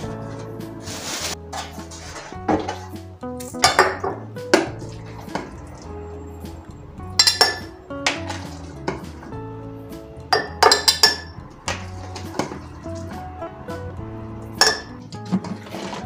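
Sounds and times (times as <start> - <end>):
kitchenware clinking and clattering: 0.0 - 6.0, 7.2 - 9.3, 10.3 - 13.2, 14.6 - 16.0
soft background music: 0.0 - 16.0.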